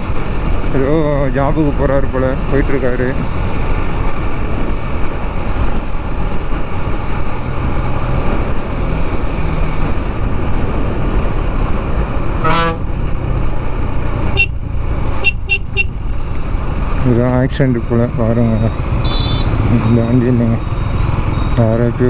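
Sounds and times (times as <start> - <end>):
motorcycle engine and wind rumble: 0.0 - 22.0
vehicle horn honking: 12.4 - 12.9, 14.3 - 14.6, 15.2 - 16.0, 18.9 - 19.7.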